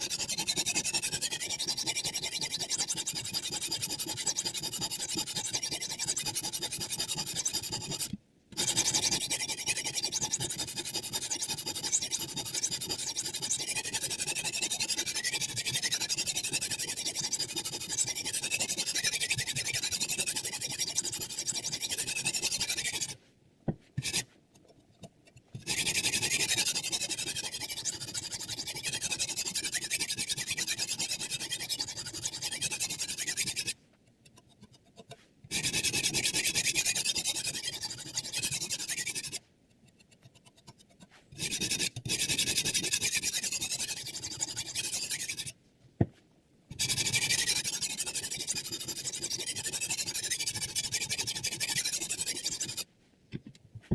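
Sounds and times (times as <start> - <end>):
sharpening stone scraping knife: 0.0 - 23.2, 24.0 - 45.6, 46.7 - 52.9.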